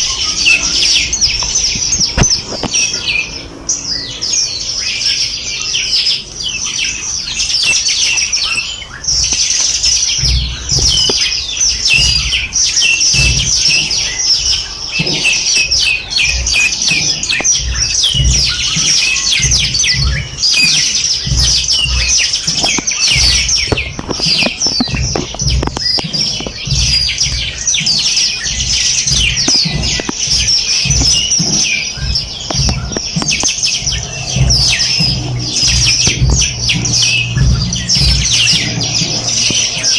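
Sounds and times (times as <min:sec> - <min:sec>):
songbirds chirping and trilling: 0:00.0 - 0:39.9
low rumble: 0:10.2 - 0:39.9.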